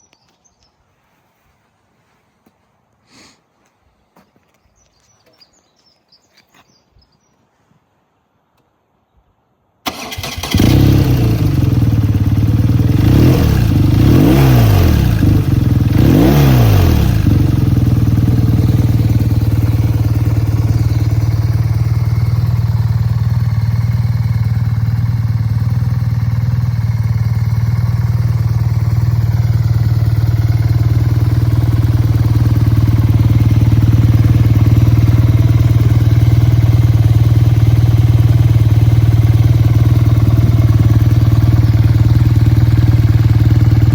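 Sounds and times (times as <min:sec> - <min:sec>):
motorcycle engine starting and revving: 0:09.8 - 0:43.9.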